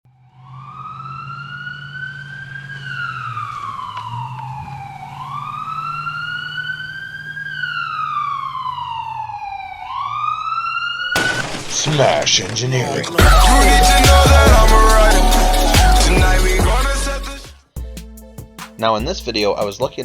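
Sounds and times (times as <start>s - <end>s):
wailing siren: 0.3s - 11.1s.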